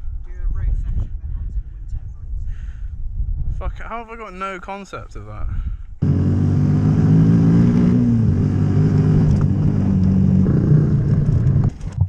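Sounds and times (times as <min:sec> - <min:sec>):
dirt bike engine revving: 0:06.0 - 0:11.8.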